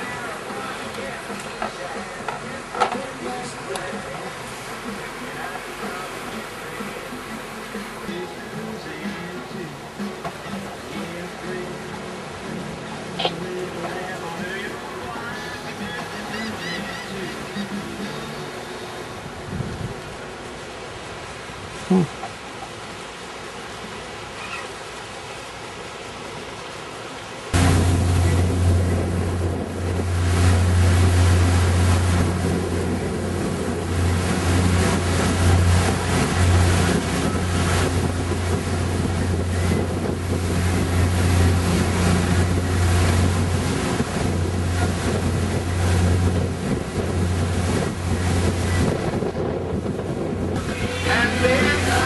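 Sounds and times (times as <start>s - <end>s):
boat engine humming: 0.0s - 52.0s
water noise: 0.0s - 52.0s
wind on microphone: 19.2s - 20.2s, 27.6s - 52.0s.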